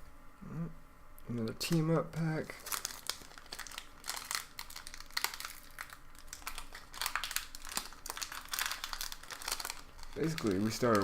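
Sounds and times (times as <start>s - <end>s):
foil wrapper crinkling: 2.4s - 11.0s.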